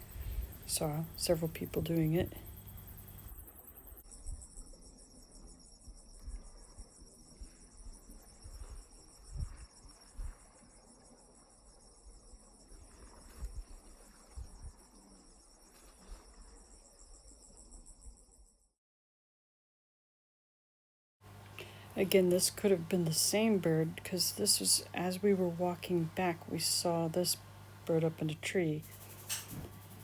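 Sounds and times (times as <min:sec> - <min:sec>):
insects chirring: 0:00.0 - 0:18.7.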